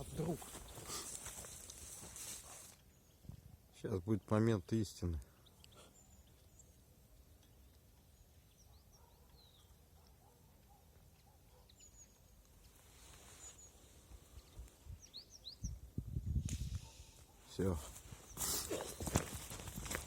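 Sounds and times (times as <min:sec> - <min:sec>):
soft rustle: 0:00.0 - 0:02.9, 0:12.5 - 0:14.9, 0:16.8 - 0:20.0
small songbirds chirping: 0:00.0 - 0:20.0.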